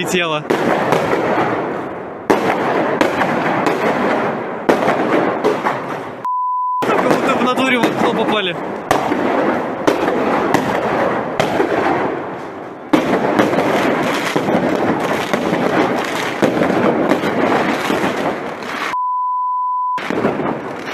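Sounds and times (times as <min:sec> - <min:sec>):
fireworks bangs and crackle: 0:00.0 - 0:19.0, 0:20.0 - 0:20.9
steady beep tone: 0:06.2 - 0:06.9, 0:19.0 - 0:20.0.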